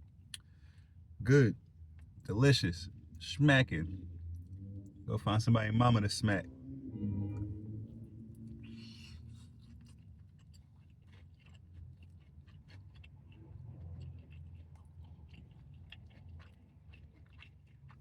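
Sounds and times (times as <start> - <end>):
low steady hum: 0.0 - 18.0
person chewing: 7.0 - 18.0.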